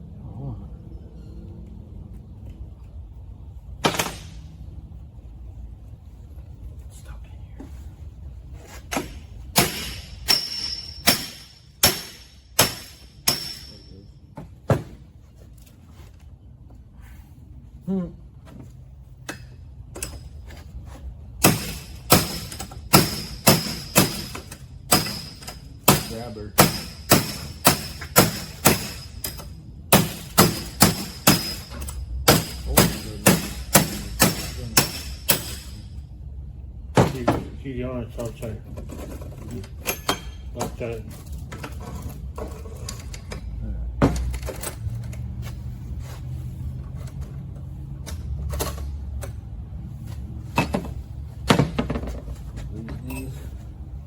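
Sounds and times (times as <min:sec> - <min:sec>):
hammer striking metal: 0:03.8 - 0:04.4, 0:08.9 - 0:14.0, 0:21.4 - 0:36.0
high metallic ring: 0:09.6 - 0:14.2.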